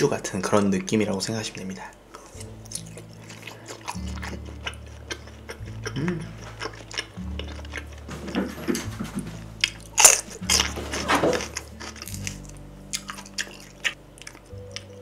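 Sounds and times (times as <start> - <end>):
chewing with wet mouth clicks: 2.1 - 8.1, 11.4 - 15.0.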